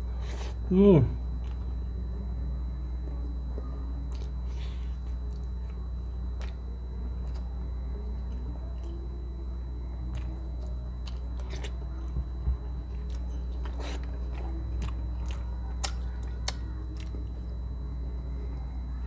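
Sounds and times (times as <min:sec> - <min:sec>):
crunchy chewing clicks: 0:04.1 - 0:04.4, 0:05.0 - 0:06.6, 0:07.2 - 0:09.2, 0:09.9 - 0:17.6.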